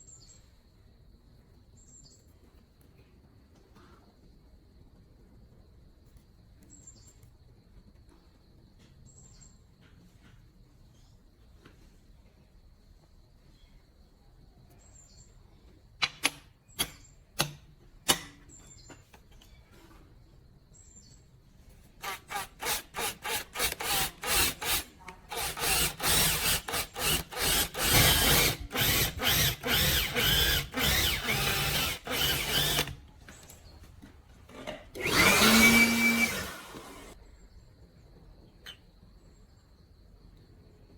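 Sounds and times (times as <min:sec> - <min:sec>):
power drill whirring: 0:22.0 - 0:33.0, 0:35.0 - 0:37.2.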